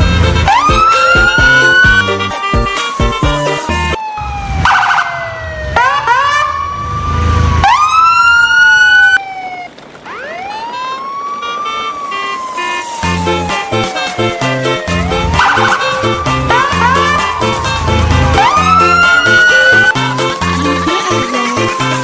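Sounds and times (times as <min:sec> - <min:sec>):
music with a beat: 0:00.0 - 0:04.0, 0:13.2 - 0:22.0
wailing siren: 0:00.0 - 0:22.0
rising whoops: 0:15.1 - 0:20.0.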